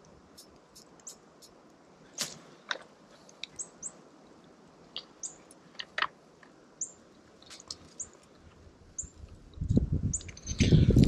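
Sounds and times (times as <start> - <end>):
small birds chirping: 3.1 - 4.0, 4.9 - 6.0, 6.8 - 11.0.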